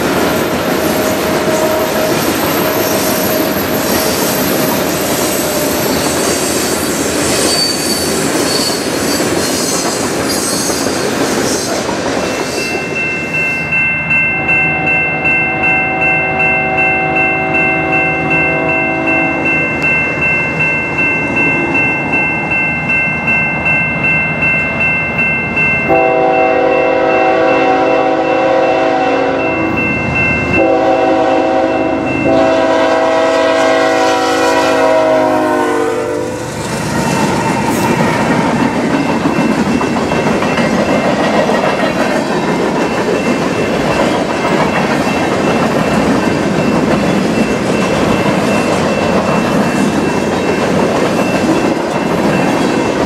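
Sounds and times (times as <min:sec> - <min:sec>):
train wheels clickety-clack: 0:00.0 - 0:13.6, 0:36.5 - 0:53.0
crossing bell ringing: 0:00.0 - 0:53.0
locomotive horn blasts: 0:14.8 - 0:19.5, 0:25.9 - 0:29.8, 0:30.6 - 0:36.4.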